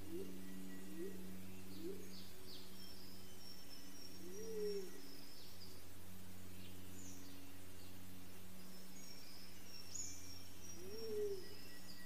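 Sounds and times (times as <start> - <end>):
bird hooting: 0.0 - 2.2, 4.2 - 5.0, 10.8 - 11.8
steady low hum: 0.0 - 12.0.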